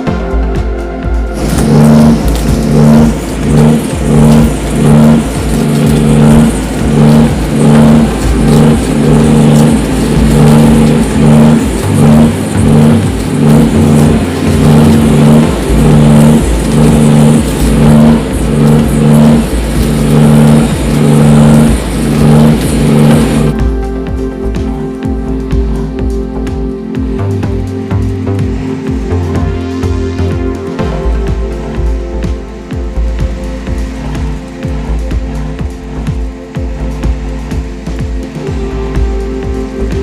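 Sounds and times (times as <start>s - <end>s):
music with pulsing beat: 0.0s - 40.0s.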